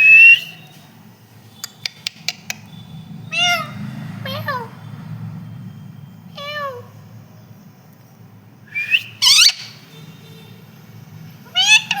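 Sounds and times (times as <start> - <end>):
parrot shrill calls: 2.0 - 4.7, 6.4 - 6.9, 8.7 - 9.9, 11.4 - 12.0.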